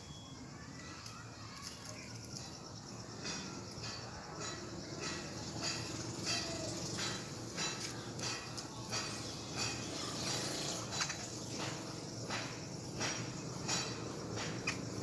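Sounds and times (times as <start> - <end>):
birds giving rasping alarm calls: 5.0 - 15.0.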